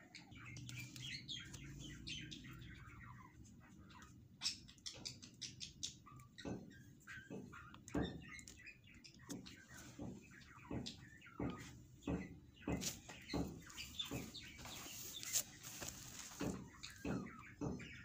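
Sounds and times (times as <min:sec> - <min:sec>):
small birds chirping: 0:00.0 - 0:18.0
soft taps and rustles: 0:06.4 - 0:18.0.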